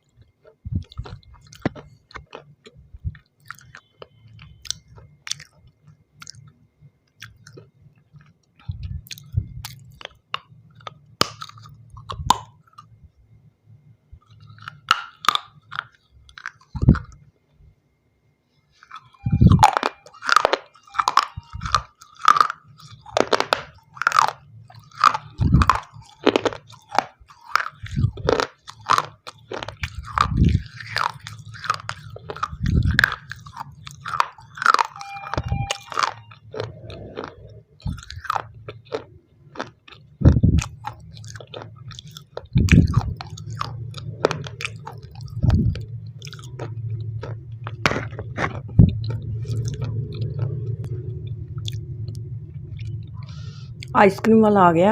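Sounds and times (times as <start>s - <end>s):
chewing: 0.0s - 13.0s, 14.2s - 17.3s, 18.7s - 54.0s
low steady hum: 0.0s - 54.9s
biting and crunching stone: 35.4s - 50.1s.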